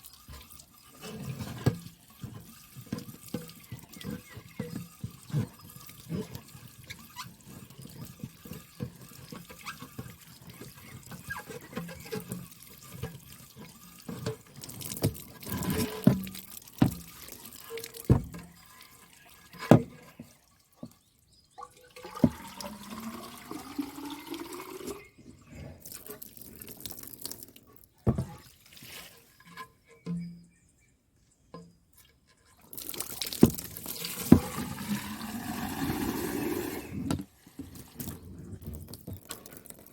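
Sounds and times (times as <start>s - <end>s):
water running and splashing: 0.0s - 25.1s, 25.8s - 29.4s, 32.6s - 39.9s
sharp knocks and clatters: 14.1s - 17.4s, 18.0s - 18.6s.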